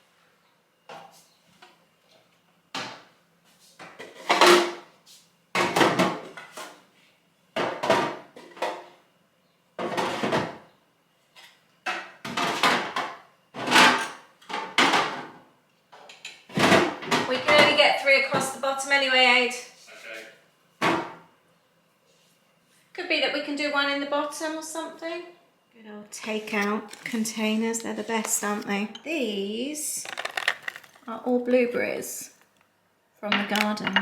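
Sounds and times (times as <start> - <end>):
plastic boxes clattering on shelves: 30.0 - 31.1.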